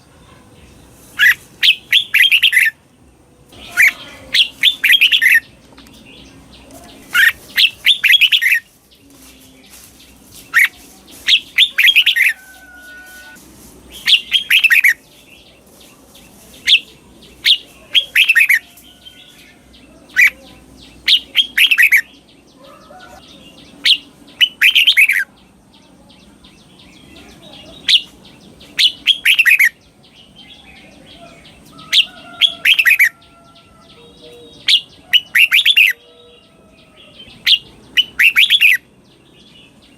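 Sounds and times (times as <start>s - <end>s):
bird singing whistled notes: 1.2s - 2.8s, 3.6s - 6.4s, 7.0s - 8.7s, 10.5s - 15.5s, 23.0s - 25.3s, 27.9s - 31.1s, 37.3s - 39.9s.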